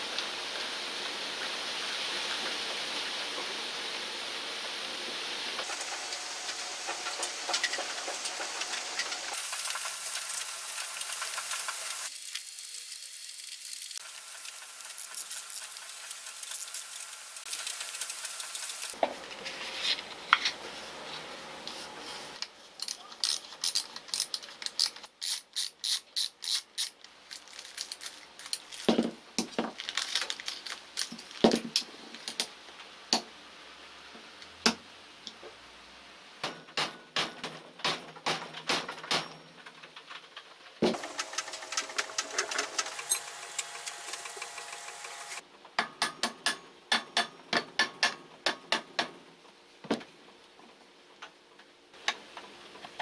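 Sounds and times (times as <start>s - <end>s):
ball bearings clinking: 14.9s - 15.8s.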